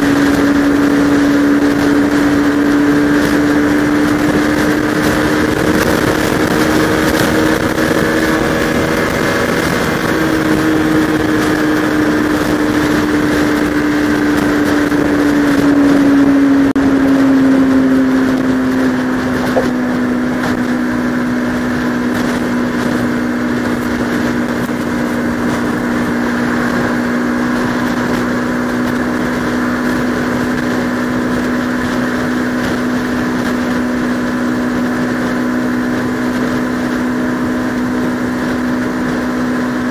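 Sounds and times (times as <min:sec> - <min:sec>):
motorcycle engine cruising: 0:00.0 - 0:39.9
wind and road rush: 0:00.0 - 0:39.9.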